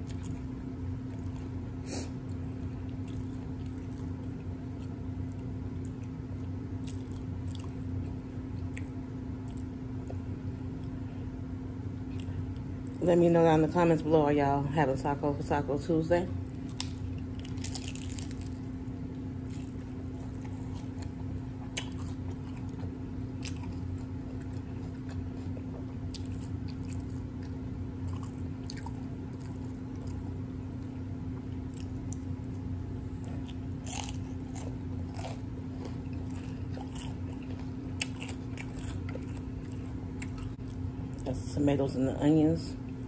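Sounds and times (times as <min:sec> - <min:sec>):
wet chewing: 0:00.0 - 0:10.2, 0:16.5 - 0:18.7, 0:19.4 - 0:30.4, 0:31.4 - 0:41.3
steady low hum: 0:00.0 - 0:43.0
crunching hard taco shells: 0:16.5 - 0:30.4, 0:31.5 - 0:40.9.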